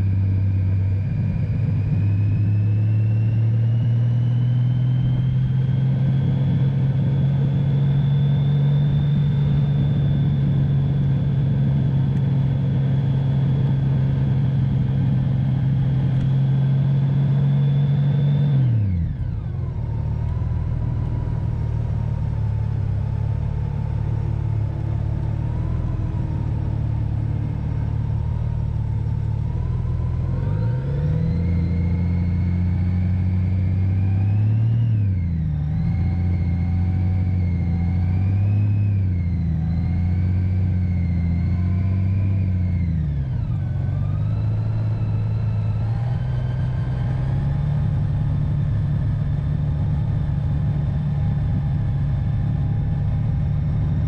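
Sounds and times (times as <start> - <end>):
motorcycle engine running: 18.8 - 34.0, 39.1 - 54.0.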